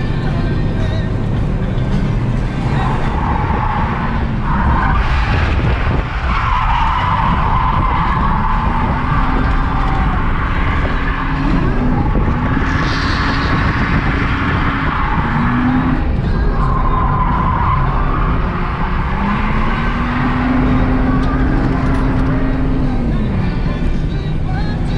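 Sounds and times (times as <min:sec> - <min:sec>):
car engine working hard: 0:00.0 - 0:24.9.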